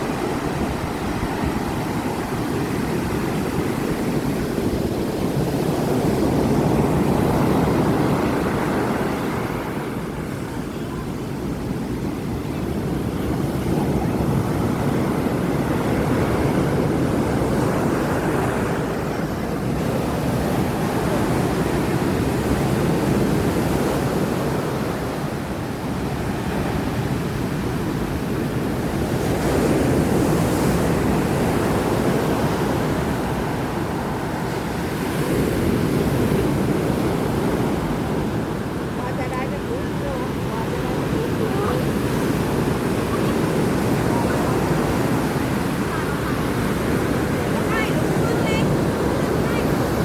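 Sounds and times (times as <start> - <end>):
surf breaking on a beach: 0.0 - 50.0
wind buffeting the microphone: 0.0 - 50.0.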